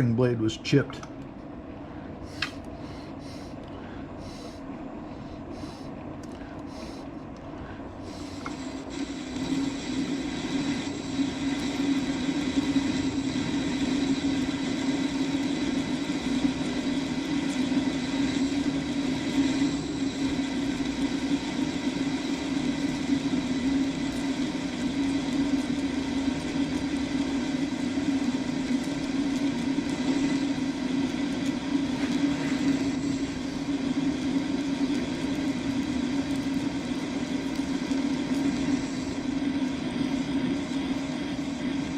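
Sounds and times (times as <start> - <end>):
metal lathe cutting: 8.4 - 28.8.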